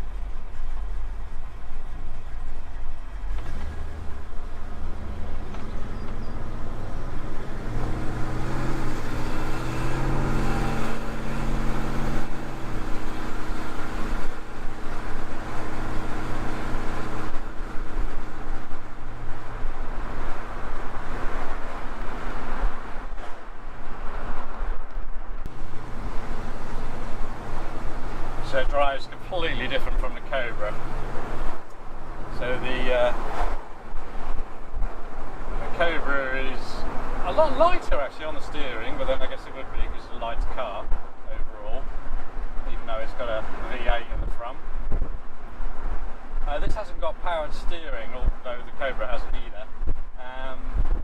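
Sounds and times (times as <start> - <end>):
car engine running: 0.0 - 22.4, 25.4 - 36.3
road noise: 0.0 - 51.0.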